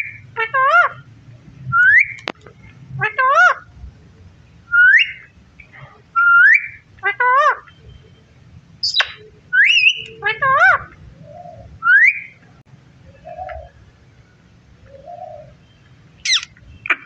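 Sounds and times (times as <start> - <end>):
parrot whistles and squawks: 6.2 - 7.8, 16.2 - 17.0.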